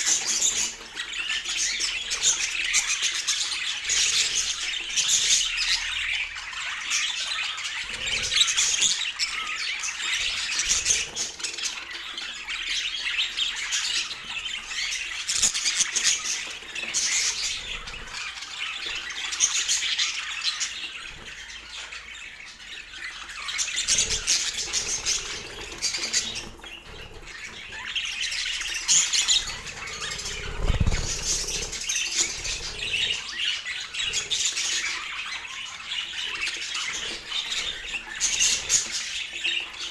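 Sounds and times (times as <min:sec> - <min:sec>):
budgies chattering: 0:00.0 - 0:39.9
low thump or flutter: 0:30.1 - 0:31.5.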